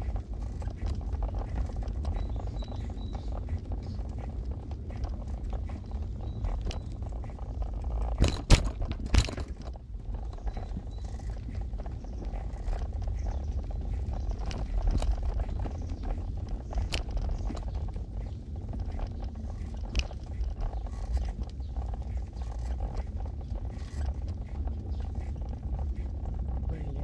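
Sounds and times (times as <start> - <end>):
car engine and tyre rumble: 0.0 - 27.0
sharp knocks and rattles: 0.0 - 27.0.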